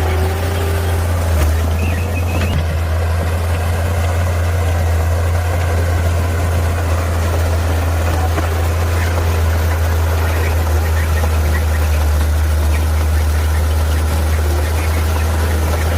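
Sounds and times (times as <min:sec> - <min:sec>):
heavy diesel engine running: 0:00.0 - 0:15.9.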